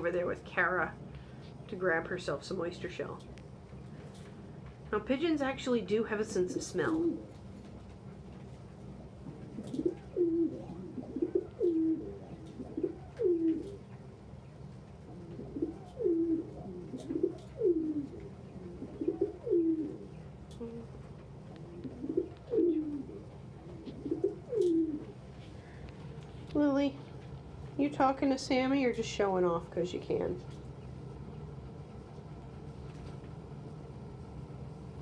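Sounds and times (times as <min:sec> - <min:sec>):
pigeons cooing: 0:06.7 - 0:25.9.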